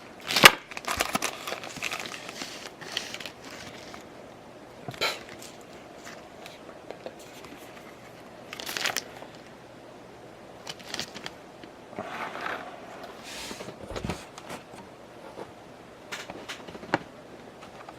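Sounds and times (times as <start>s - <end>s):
packaging crinkling: 0.2s - 4.1s, 8.5s - 9.4s, 10.6s - 11.4s.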